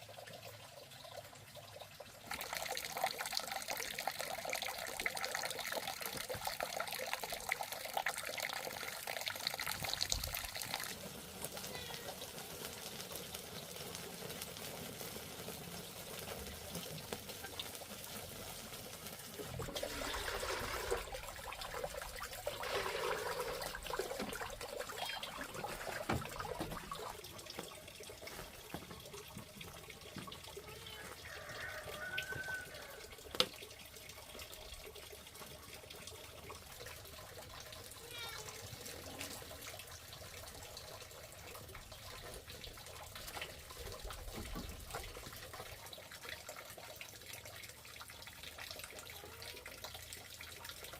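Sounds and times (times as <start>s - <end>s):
water running from tap: 0.0s - 50.9s
water splashing: 16.4s - 46.2s.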